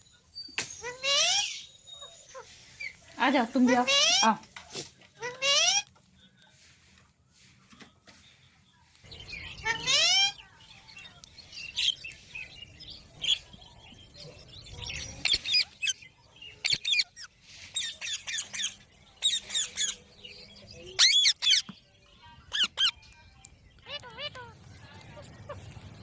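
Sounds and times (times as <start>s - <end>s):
parakeets screeching: 0.8s - 4.4s, 5.2s - 5.9s, 9.4s - 10.4s, 21.0s - 21.7s, 22.5s - 23.0s.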